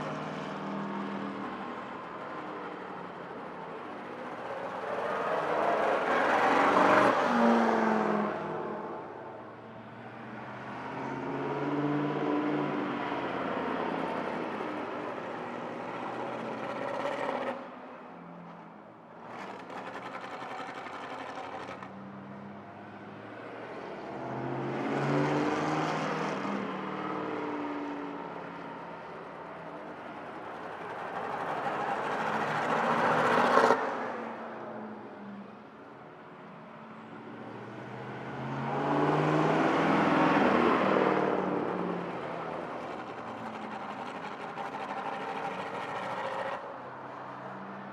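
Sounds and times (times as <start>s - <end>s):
car engines revving past: 4.2s - 9.1s, 23.8s - 28.3s, 29.8s - 34.9s, 37.3s - 46.8s.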